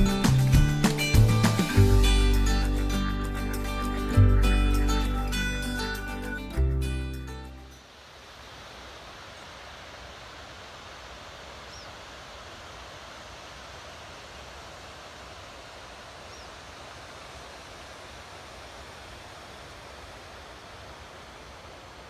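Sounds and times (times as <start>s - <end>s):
waterfall rushing: 7.7s - 22.0s.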